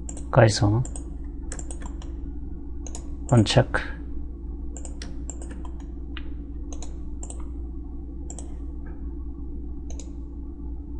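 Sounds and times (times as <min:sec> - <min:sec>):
low electrical hum: 0:00.0 - 0:10.9
mouse and keyboard clicking: 0:00.1 - 0:02.1, 0:02.8 - 0:03.4, 0:04.8 - 0:05.9, 0:06.7 - 0:07.5, 0:08.3 - 0:08.6, 0:09.9 - 0:10.2.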